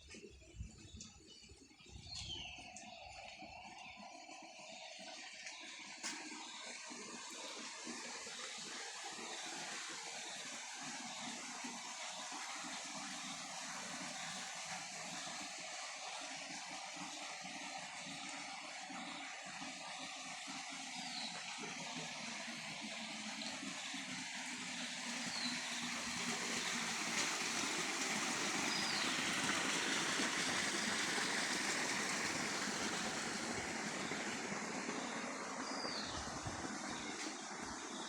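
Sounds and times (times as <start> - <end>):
water rushing: 2.6 - 38.0.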